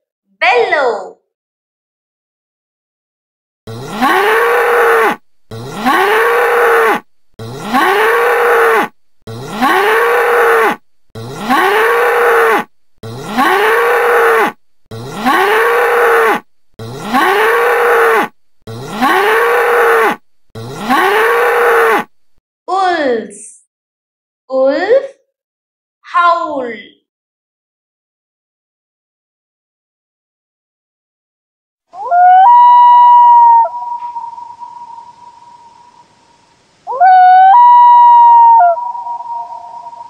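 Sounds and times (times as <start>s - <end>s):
bull bellowing: 3.7s - 22.2s.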